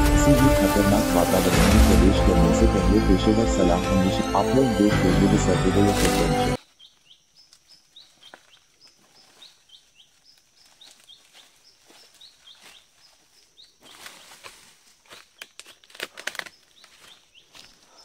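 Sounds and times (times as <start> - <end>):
bird chirping: 5.7 - 14.3
dry leaves crackling underfoot: 5.8 - 17.9.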